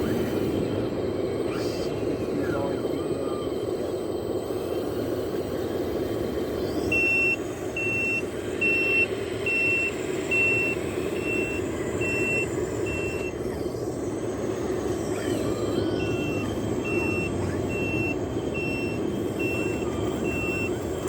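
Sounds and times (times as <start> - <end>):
steady background noise: 0.0 - 21.0
high-pitched reversing beeps: 6.6 - 20.9.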